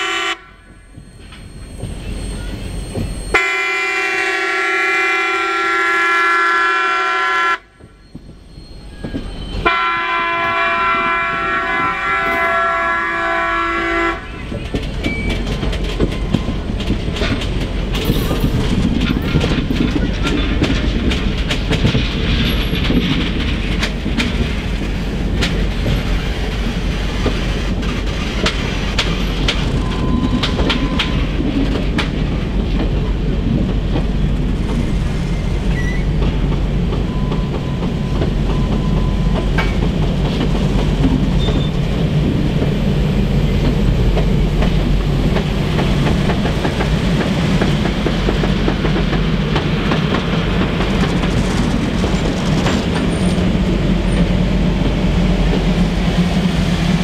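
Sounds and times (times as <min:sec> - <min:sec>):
low train rumble: 0:00.0 - 0:57.0
faint squeal: 0:00.9 - 0:03.4, 0:07.9 - 0:09.6, 0:34.9 - 0:36.2
train wheels clicking over rail joints: 0:14.1 - 0:57.0.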